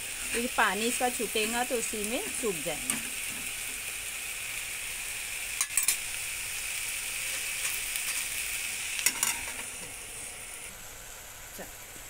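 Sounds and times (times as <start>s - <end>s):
food sizzling in oil: 0.0s - 12.0s
metal spoon clattering on pan: 5.6s - 6.0s, 9.0s - 9.6s.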